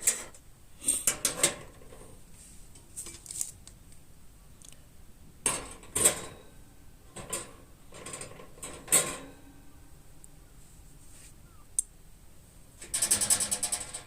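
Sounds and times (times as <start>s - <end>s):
sheet metal clinking and knocking: 5.4s - 9.7s, 12.8s - 14.0s.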